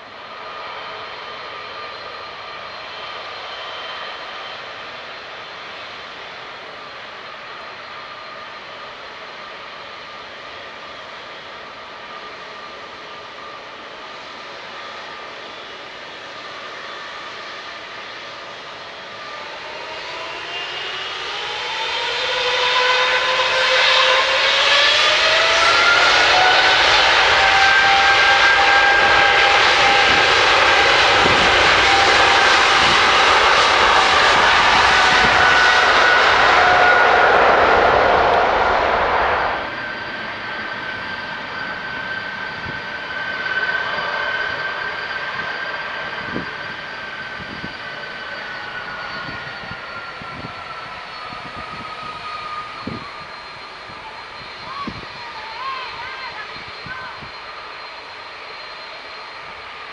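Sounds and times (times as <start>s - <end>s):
jet engine whine spooling up: 0.0s - 59.9s.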